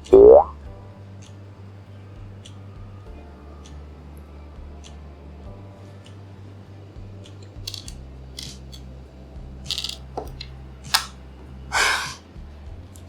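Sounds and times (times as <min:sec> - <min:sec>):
plastic puzzle pieces clicking: 0:07.3 - 0:08.8, 0:09.7 - 0:11.1
scraping sound: 0:11.7 - 0:12.2.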